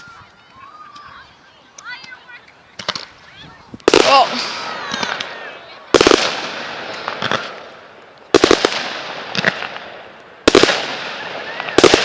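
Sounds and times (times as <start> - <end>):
fireworks bangs: 2.8 - 12.0.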